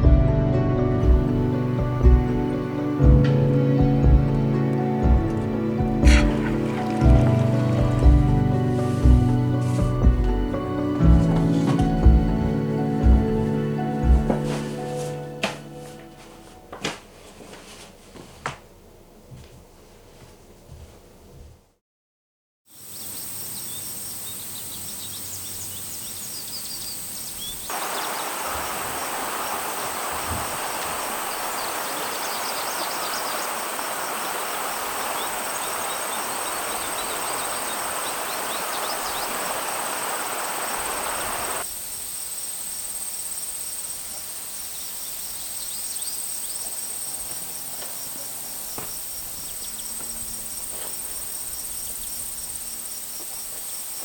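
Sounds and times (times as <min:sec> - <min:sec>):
steady high hiss: 0:22.8 - 0:54.0
even rushing noise: 0:27.7 - 0:41.7.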